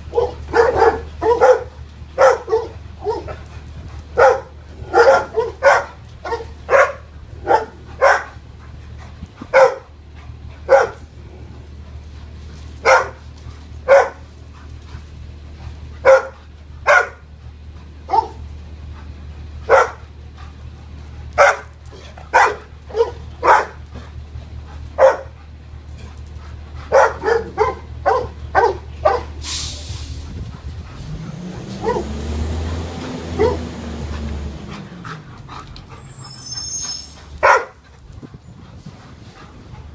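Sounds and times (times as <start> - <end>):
dog barking: 0.1 - 3.4, 4.2 - 8.4, 9.5 - 9.9, 10.7 - 11.0, 12.8 - 13.2, 13.8 - 14.2, 16.0 - 17.2, 18.1 - 18.4, 19.7 - 20.0, 21.4 - 23.8, 25.0 - 25.4, 26.9 - 29.4, 31.8 - 32.2, 33.3 - 33.7, 37.4 - 37.8.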